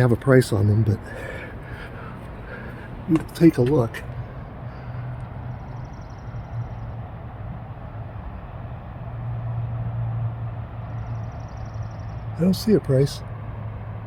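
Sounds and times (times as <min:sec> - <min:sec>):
road and traffic noise: 0:00.0 - 0:14.0
vehicle engine hum: 0:00.0 - 0:14.0.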